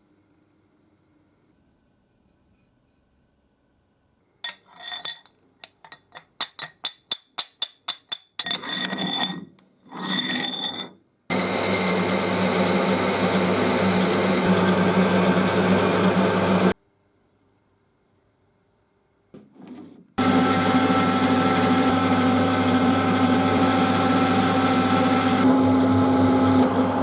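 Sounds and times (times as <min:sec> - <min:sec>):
electric power tool running: 0:11.3 - 0:16.8, 0:20.2 - 0:27.0.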